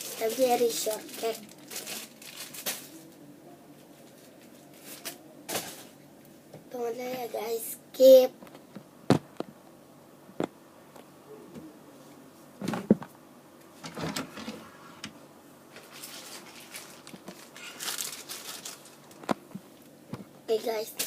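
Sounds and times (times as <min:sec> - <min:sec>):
rustling: 0:15.7 - 0:19.8.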